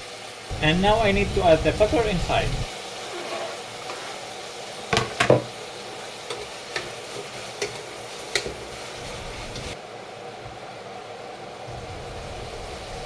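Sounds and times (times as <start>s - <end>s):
beans sizzling in frying pan: 0.0s - 13.0s
knocks against pan: 4.9s - 5.5s.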